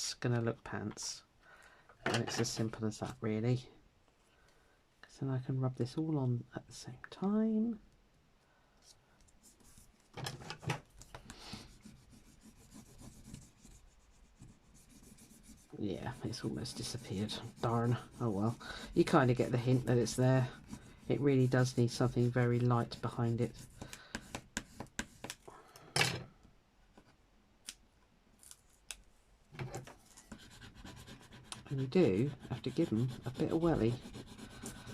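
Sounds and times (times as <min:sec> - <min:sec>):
tool scratching over paper: 0:11.5 - 0:25.4, 0:30.1 - 0:34.9.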